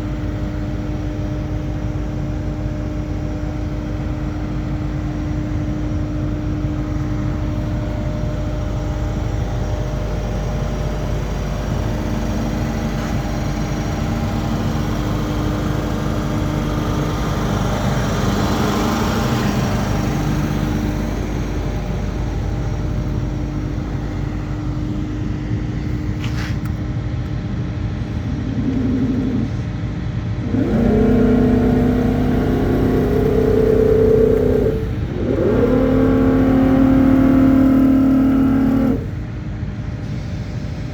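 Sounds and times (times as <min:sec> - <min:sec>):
diesel engine droning: 0:00.0 - 0:40.9
higher stepping whine: 0:20.6 - 0:39.5.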